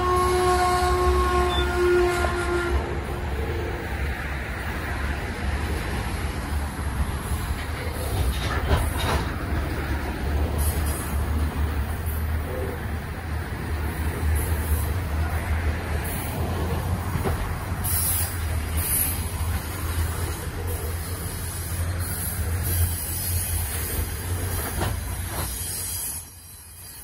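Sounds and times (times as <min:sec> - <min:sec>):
wagon wheels rumbling on rail: 0:00.0 - 0:27.0
wheels squealing and hissing: 0:10.5 - 0:12.9, 0:17.7 - 0:27.0.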